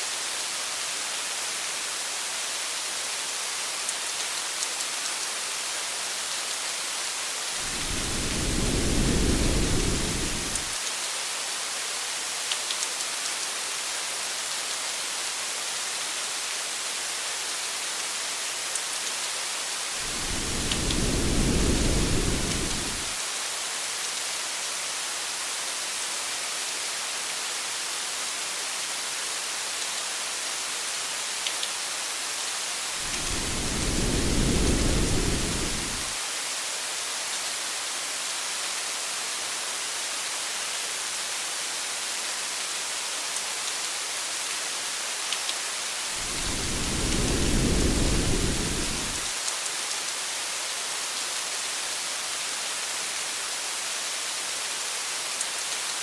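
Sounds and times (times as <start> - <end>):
faint raindrop ticks: 3.8 - 5.3, 12.4 - 13.5, 20.1 - 23.2, 31.4 - 31.8, 45.3 - 45.6
rain hissing: 7.5 - 10.8, 19.8 - 23.2, 32.8 - 36.2, 46.0 - 49.4
low thunder rumble: 7.6 - 10.7, 20.0 - 23.1, 33.0 - 36.2, 46.2 - 49.3.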